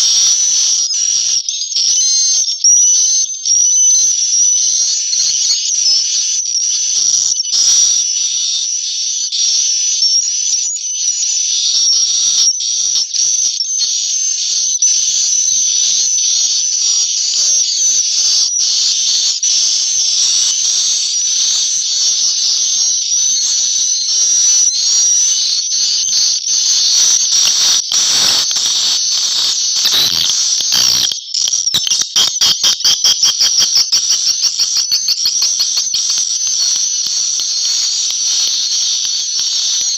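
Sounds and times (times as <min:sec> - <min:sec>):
swiftlets twittering: 0:26.5 - 0:39.4.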